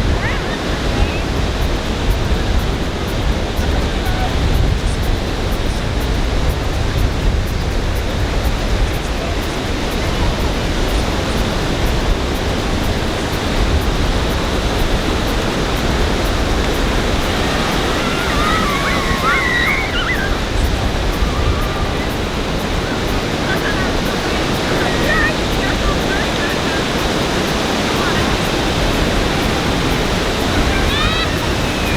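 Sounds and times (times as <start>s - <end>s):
ocean surf washing onto beach: 0.0s - 31.9s
wind rumble on microphone: 0.0s - 31.9s
high wavering calls: 13.1s - 31.9s.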